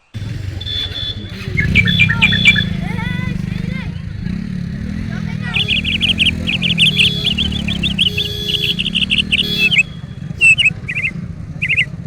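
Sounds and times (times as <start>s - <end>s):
songbird chirping: 0.0s - 12.0s.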